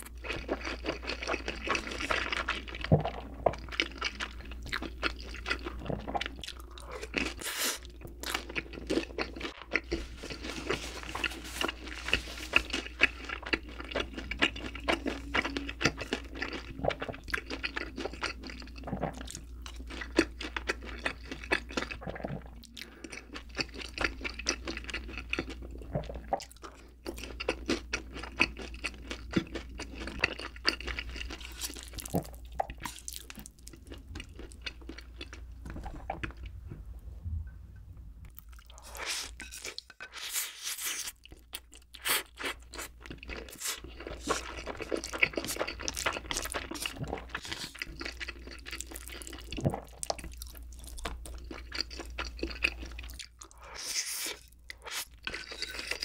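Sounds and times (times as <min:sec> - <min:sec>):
person chewing crunchy food: 0:00.0 - 0:36.7, 0:38.3 - 0:56.0
low hum: 0:35.3 - 0:38.7.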